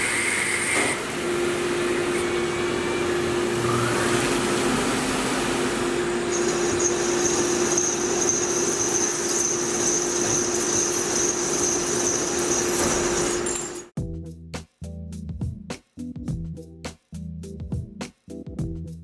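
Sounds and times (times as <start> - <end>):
high cutting whine: 0.0 - 13.9
lathe spindle hum: 0.0 - 13.9
music: 14.0 - 19.0.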